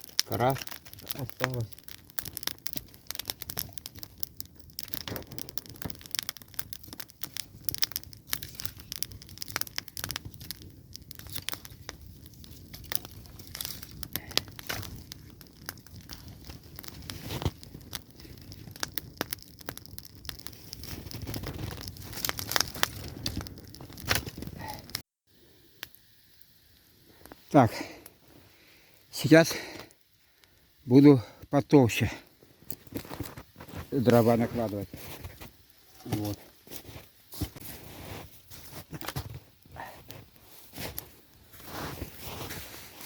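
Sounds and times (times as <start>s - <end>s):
kindling fire crackling: 0.0s - 43.0s.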